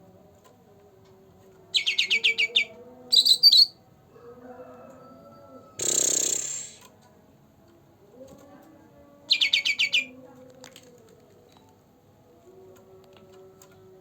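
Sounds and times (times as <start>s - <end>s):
songbird high chirps: 1.8s - 3.8s.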